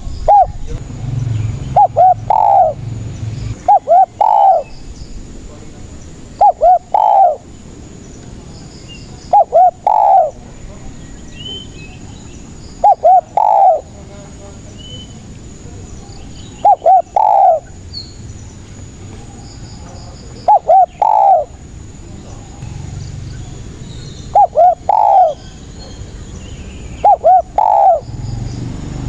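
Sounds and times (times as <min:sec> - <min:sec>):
dove cooing: 0:00.0 - 0:00.8, 0:01.6 - 0:04.9, 0:05.5 - 0:07.8, 0:09.2 - 0:10.6, 0:12.8 - 0:14.0, 0:16.5 - 0:17.9, 0:19.1 - 0:22.8, 0:23.6 - 0:26.3, 0:26.9 - 0:28.2
small birds chirping: 0:00.0 - 0:29.0.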